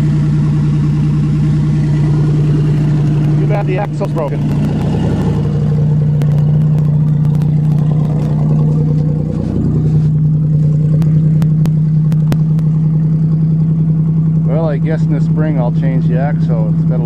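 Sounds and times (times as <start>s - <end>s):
car engine idling: 0.0s - 17.0s
sharp clicks: 4.0s - 9.1s, 10.8s - 12.8s.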